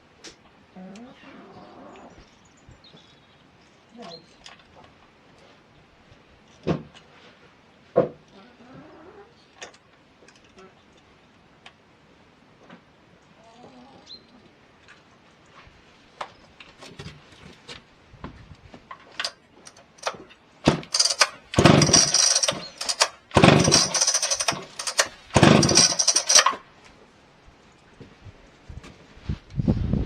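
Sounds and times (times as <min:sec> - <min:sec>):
chainsaw engine running: 0:20.0 - 0:26.6.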